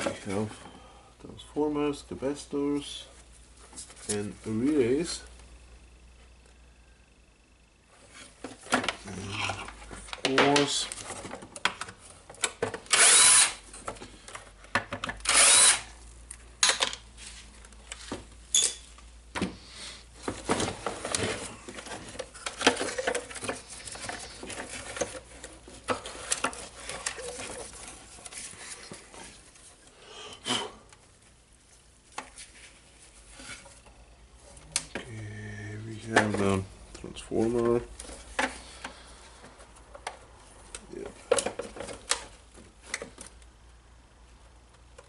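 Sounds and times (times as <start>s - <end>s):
cordless drill running: 12.9s - 13.6s, 15.2s - 15.9s
parts clicking and rattling: 20.2s - 29.7s, 36.0s - 43.5s.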